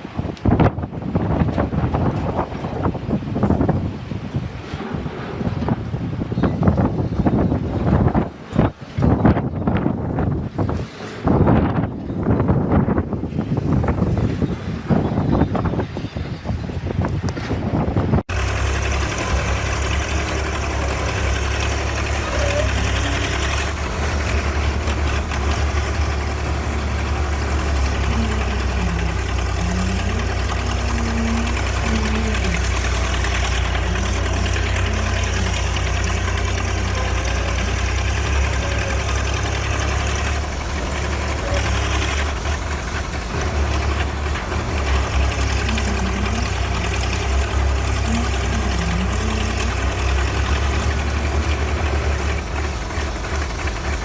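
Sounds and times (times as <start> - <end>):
heavy vehicle engine idling: 18.1 - 54.0.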